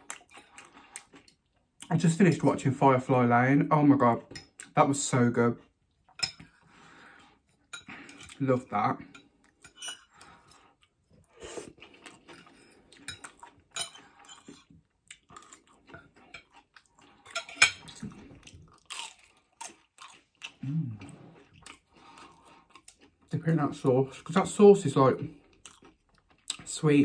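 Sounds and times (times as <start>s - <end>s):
person chewing food: 0.0s - 1.9s, 9.0s - 23.4s, 25.2s - 26.8s
cutlery clinking on a plate: 13.1s - 14.6s, 17.3s - 18.0s.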